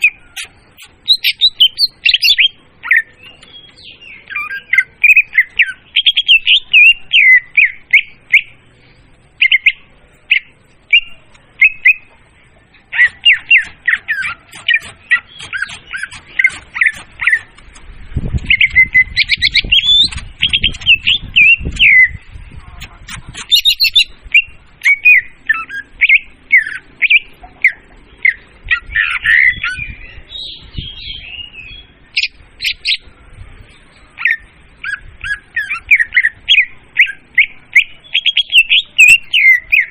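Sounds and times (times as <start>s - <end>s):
bird song lure call: 0.0s - 8.8s, 9.4s - 33.1s, 33.7s - 39.9s
low rumbling noise: 7.8s - 35.3s.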